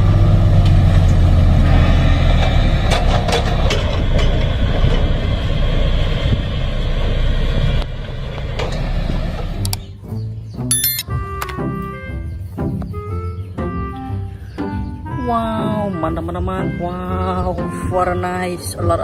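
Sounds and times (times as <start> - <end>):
vehicle engine hum: 0.0 - 9.9.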